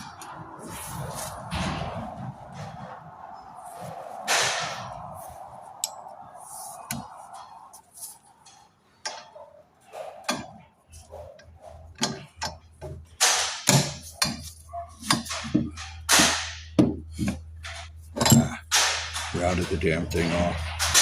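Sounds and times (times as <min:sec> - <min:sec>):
metal-on-metal knocks: 0:11.4 - 0:21.0.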